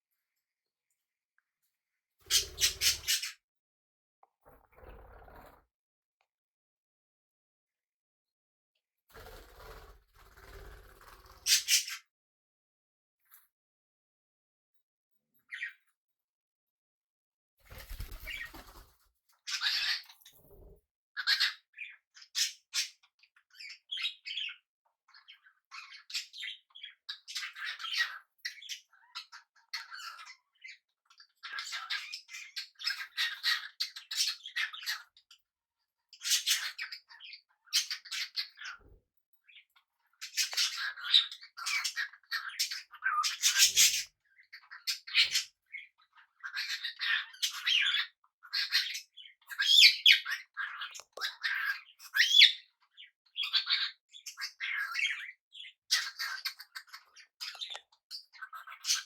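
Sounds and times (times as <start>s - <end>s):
bird squawks: 2.2s - 3.4s, 11.4s - 12.0s, 19.5s - 20.3s, 40.2s - 59.0s
birds chirping and chattering: 2.2s - 3.4s, 4.4s - 5.7s, 9.2s - 12.1s, 15.5s - 15.9s, 17.7s - 35.5s, 36.1s - 59.0s.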